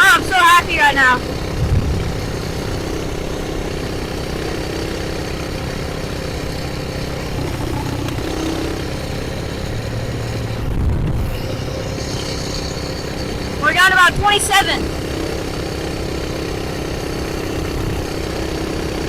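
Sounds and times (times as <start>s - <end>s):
mini bike engine running: 0.0s - 19.0s
wind noise: 1.5s - 2.6s, 10.2s - 12.4s.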